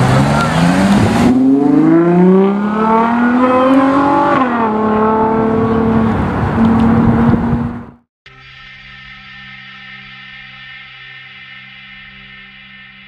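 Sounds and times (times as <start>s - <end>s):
sports car engine accelerating: 0.0s - 8.0s.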